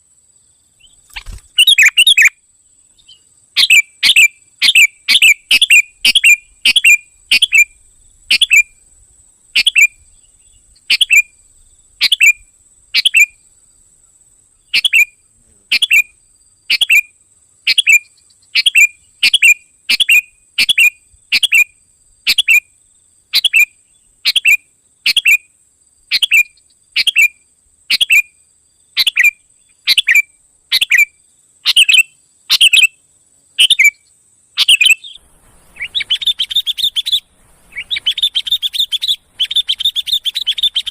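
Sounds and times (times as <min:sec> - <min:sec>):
faint high-pitched whine: 0:00.0 - 0:40.9
bird call downward-sweeping note: 0:34.7 - 0:40.9.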